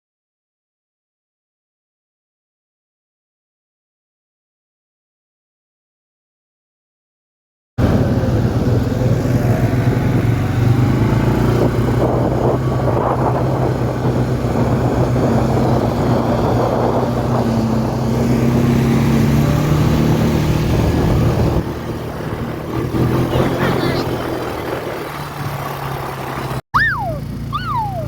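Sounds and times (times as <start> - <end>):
vehicle engine running steadily: 7.8 - 28.0.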